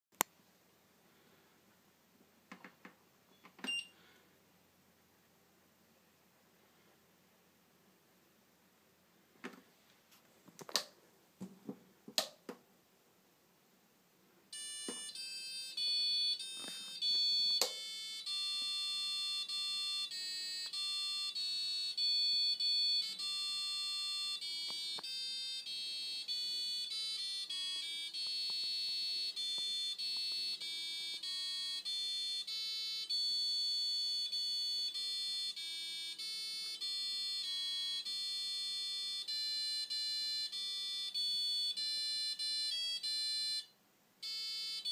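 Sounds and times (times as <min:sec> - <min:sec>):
electronic beeper playing a tune: 0:14.6 - 0:44.9.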